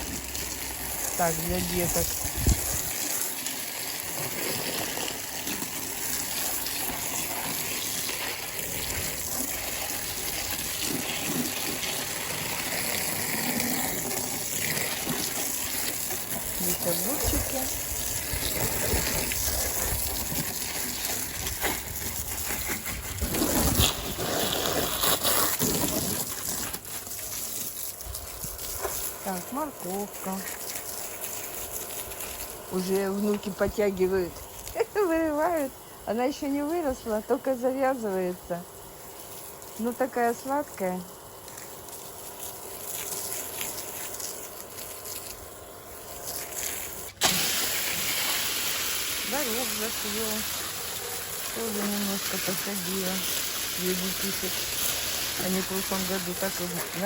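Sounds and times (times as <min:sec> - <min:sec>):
water spraying from garden hose: 0:00.0 - 0:57.0
wind buffeting microphone: 0:01.5 - 0:02.9.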